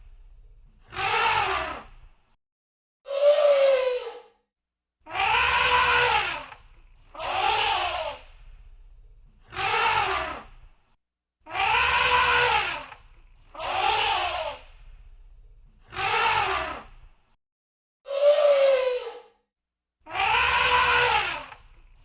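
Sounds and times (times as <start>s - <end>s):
elephant trumpeting: 5.1s - 6.6s, 7.2s - 8.2s, 11.5s - 13.0s, 13.6s - 14.6s, 20.1s - 21.6s.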